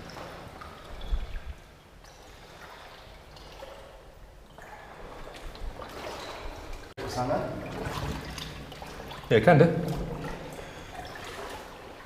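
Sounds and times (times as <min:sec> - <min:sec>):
people wading through water: 0:00.0 - 0:12.0.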